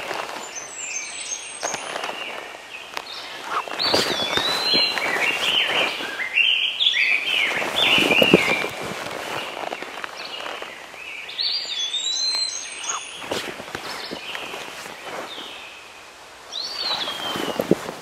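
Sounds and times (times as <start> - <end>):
songbird chirping: 0.0 - 18.0.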